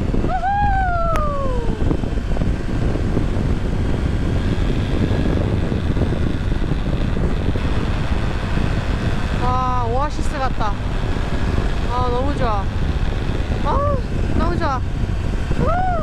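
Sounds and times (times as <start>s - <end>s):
motorcycle engine running: 0.0s - 16.0s
wind rushing over microphone: 0.0s - 16.0s
person humming: 13.6s - 14.1s.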